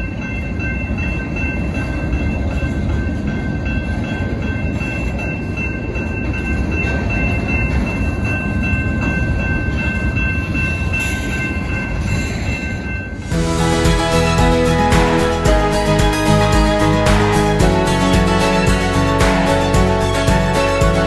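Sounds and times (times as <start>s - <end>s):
high-pitched ringing: 0.0s - 21.0s
train wheels rumbling on rails: 0.0s - 21.0s.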